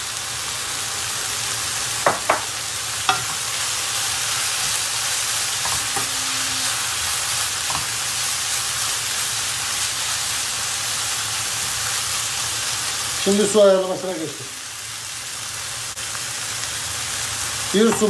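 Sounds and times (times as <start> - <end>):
food sizzling in frying pan: 0.0 - 18.0
spoon knocking against pan: 2.0 - 2.5.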